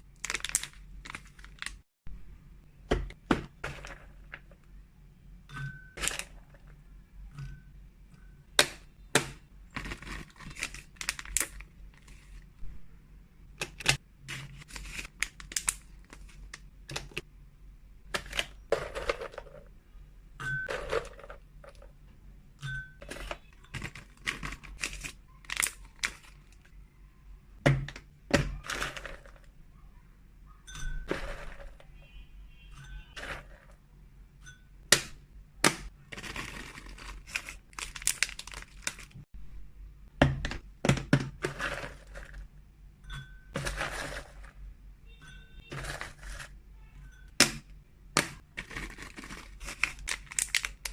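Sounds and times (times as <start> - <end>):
hard treats clicking and clattering: 0.0 - 1.8, 2.9 - 4.7, 5.5 - 12.6, 13.5 - 17.3, 18.1 - 19.8, 20.4 - 22.0, 22.6 - 26.7, 27.6 - 29.6, 30.8 - 32.0, 32.9 - 33.8, 34.9 - 39.3, 40.2 - 42.5, 43.2 - 44.6, 45.6 - 46.6, 47.3 - 50.9
plastic packaging crinkling: 0.0 - 1.8, 9.7 - 12.5, 13.6 - 17.2, 23.0 - 26.7, 36.1 - 39.3, 48.2 - 50.9.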